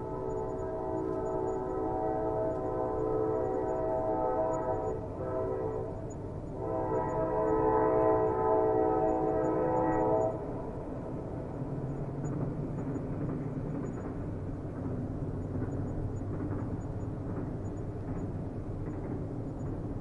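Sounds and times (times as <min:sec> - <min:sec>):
train horn chord: 0:00.0 - 0:06.0, 0:06.6 - 0:10.5
train rumbling on rails: 0:00.0 - 0:20.0.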